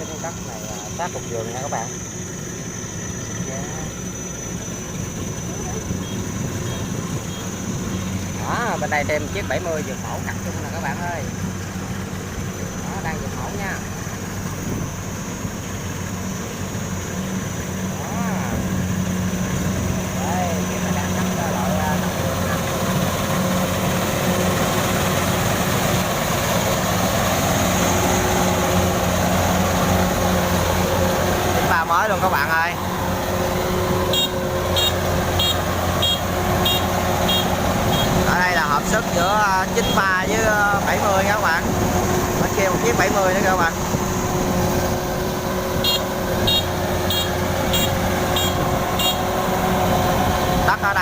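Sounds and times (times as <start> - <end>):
combine harvester engine humming: 0.0 - 51.0.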